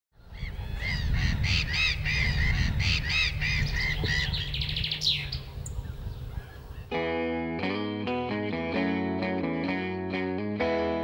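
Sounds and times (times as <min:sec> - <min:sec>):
birds calling: 0:00.2 - 0:07.1.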